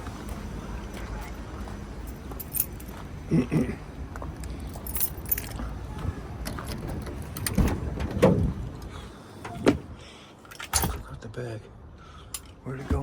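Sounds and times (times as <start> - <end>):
keys jangling: 2.0 - 3.0, 4.4 - 5.6
small metal items clinking: 4.4 - 5.6.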